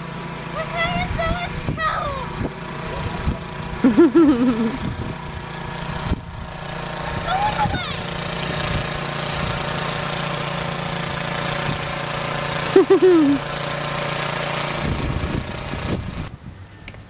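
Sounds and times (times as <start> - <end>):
engine running: 0.0 - 17.0
person crying out: 12.8 - 13.4.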